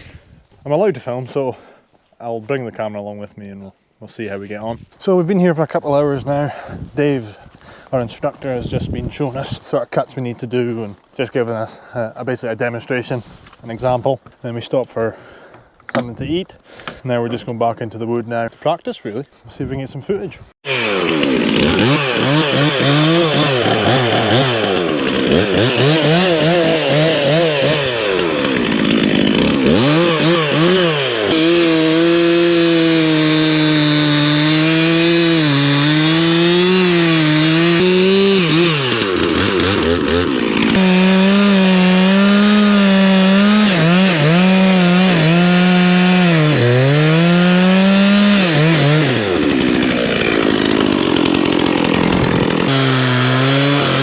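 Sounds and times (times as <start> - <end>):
chainsaw revving and cutting wood: 20.6 - 54.0.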